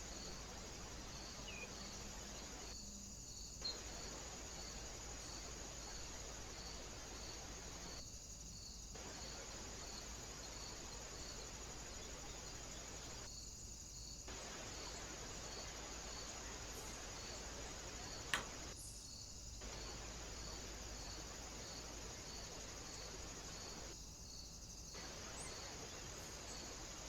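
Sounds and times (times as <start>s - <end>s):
background hiss: 0.0s - 27.0s
sharp click: 18.3s - 18.8s.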